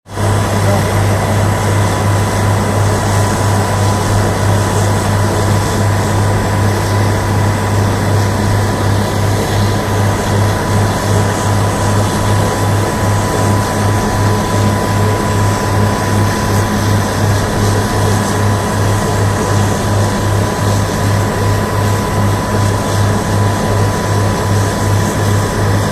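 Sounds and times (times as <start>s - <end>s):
drilling machines running: 0.1s - 25.9s
thin steady whine: 0.1s - 25.9s.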